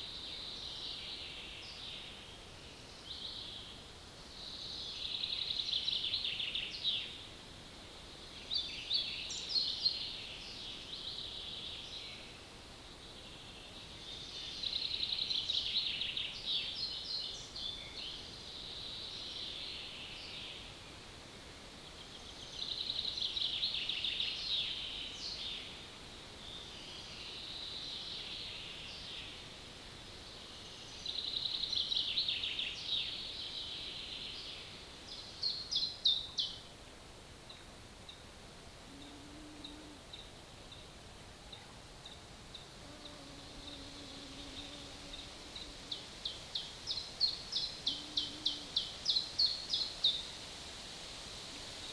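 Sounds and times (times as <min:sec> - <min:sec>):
songbird singing trills: 0:38.9 - 0:50.4.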